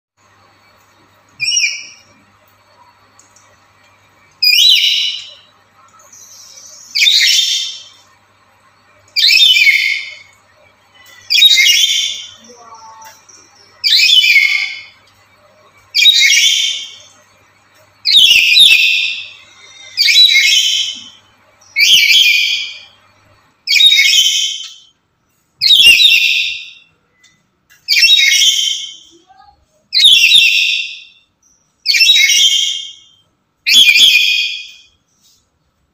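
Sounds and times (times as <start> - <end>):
parrot calling loudly: 23.7 - 24.8.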